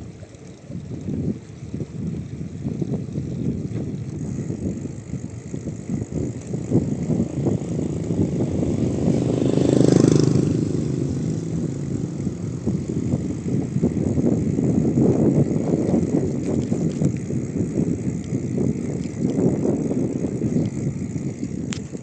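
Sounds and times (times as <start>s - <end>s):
bicycle rumbling on rough road: 0.0s - 22.0s
wind on microphone: 0.0s - 22.0s
vehicle engine passing by: 7.4s - 13.4s.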